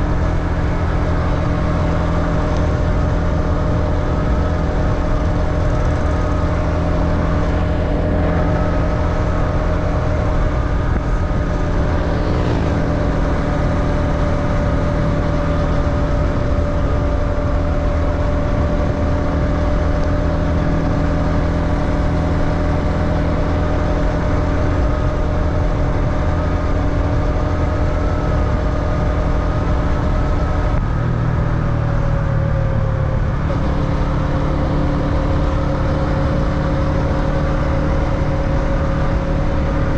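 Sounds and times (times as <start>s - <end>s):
motorbike engine running: 0.0s - 39.9s.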